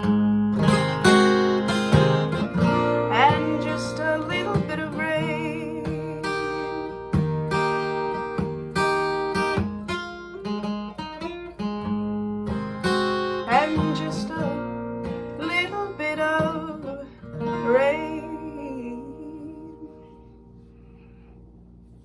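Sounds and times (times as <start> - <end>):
acoustic guitar chords: 0.0 - 22.0
person singing: 3.1 - 7.1, 13.4 - 14.8.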